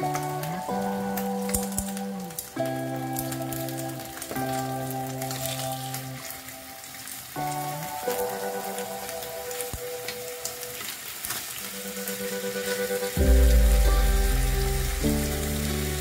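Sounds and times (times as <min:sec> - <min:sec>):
background music with heavy bass: 0:00.0 - 0:06.4, 0:12.3 - 0:16.0
chicken frying in oil: 0:00.0 - 0:16.0.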